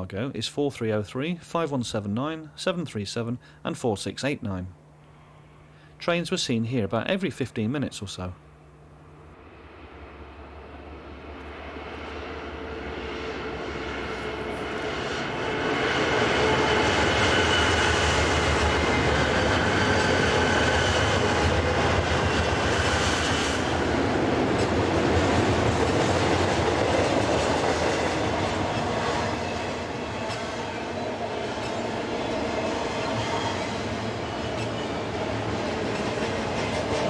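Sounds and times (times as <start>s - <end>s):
diesel locomotives passing: 5.4s - 37.0s
freight cars rumbling on rails: 9.4s - 37.0s.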